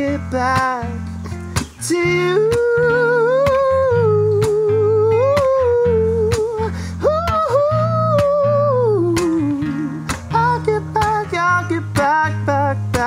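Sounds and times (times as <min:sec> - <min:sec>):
person singing wordless line: 0:00.0 - 0:13.0
strummed acoustic guitar: 0:00.0 - 0:13.0.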